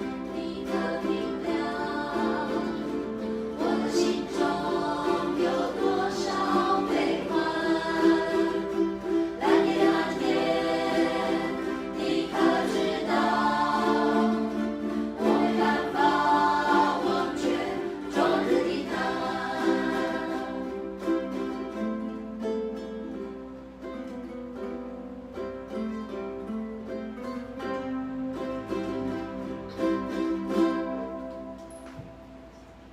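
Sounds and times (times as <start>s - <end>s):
group of voices singing: 0.0s - 21.2s
ukuleles strumming: 0.0s - 32.9s.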